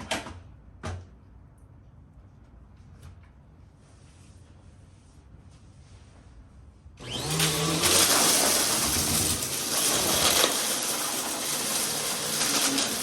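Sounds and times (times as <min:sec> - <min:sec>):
vacuum cleaner running: 0:07.0 - 0:13.0
debris clicking in vacuum: 0:07.2 - 0:13.0.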